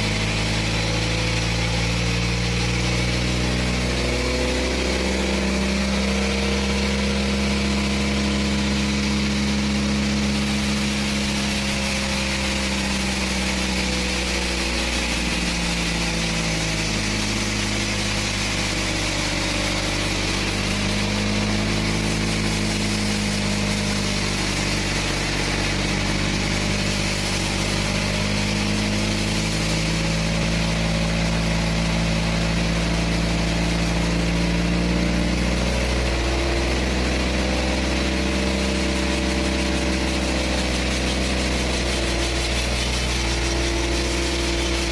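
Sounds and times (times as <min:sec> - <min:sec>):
sawmill engine running: 0:00.0 - 0:44.9.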